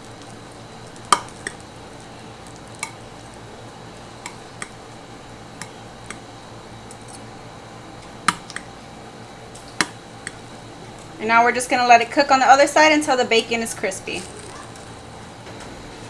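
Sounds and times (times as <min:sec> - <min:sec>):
metal forks clinking on pan: 0:06.8 - 0:07.4, 0:13.4 - 0:15.3.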